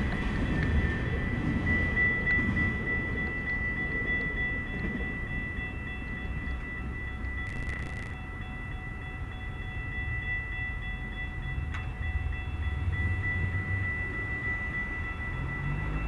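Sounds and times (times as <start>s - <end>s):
freight train rumbling by: 0.0s - 16.0s
high-pitched ringing tone: 0.0s - 16.0s.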